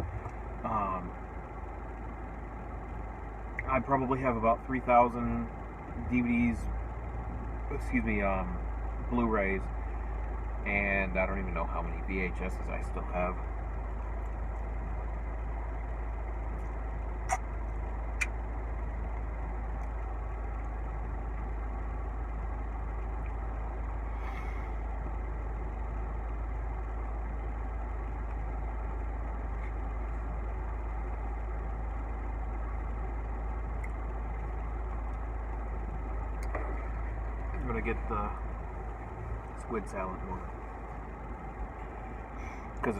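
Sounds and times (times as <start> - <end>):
car engine idling: 0.0 - 42.9
sharp clicks: 16.6 - 18.4.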